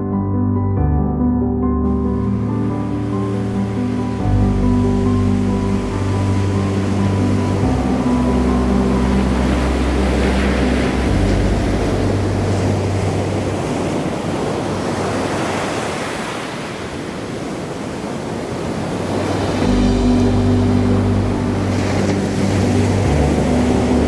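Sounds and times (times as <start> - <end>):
ocean surf washing: 1.9 - 24.0
low steady hum: 19.6 - 24.0.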